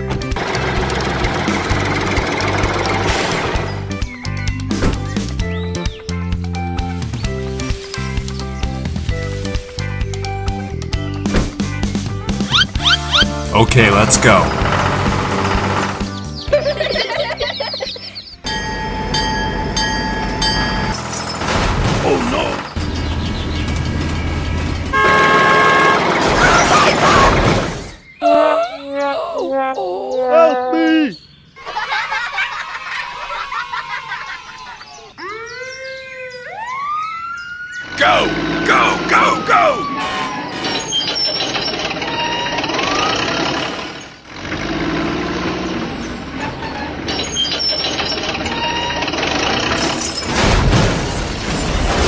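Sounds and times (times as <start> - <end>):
heavy engine running: 0.0 - 5.2, 11.8 - 17.8, 18.5 - 27.8, 39.8 - 52.0
loud rough noise: 0.3 - 3.9, 13.3 - 16.4, 40.0 - 52.0
vehicle horn blast: 24.9 - 26.2.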